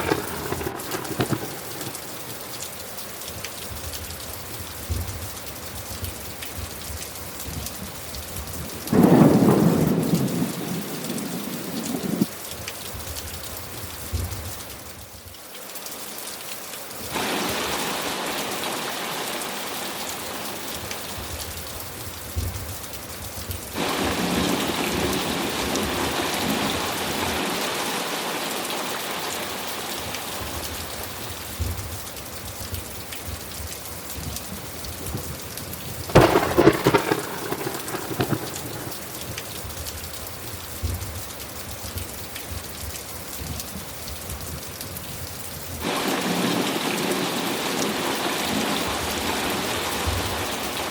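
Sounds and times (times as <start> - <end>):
thunderclap rumbling: 0.0 - 2.6, 8.4 - 12.3, 23.5 - 27.6, 34.2 - 40.0
heavy rainfall: 0.0 - 50.9.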